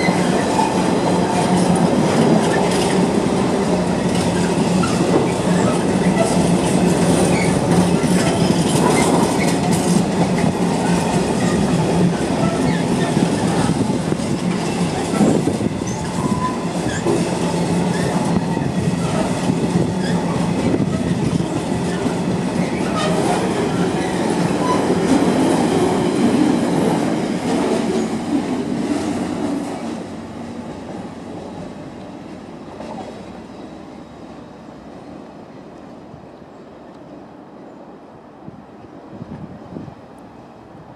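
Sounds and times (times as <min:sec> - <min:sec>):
freight wagons rumbling on rails: 0:00.0 - 0:34.6.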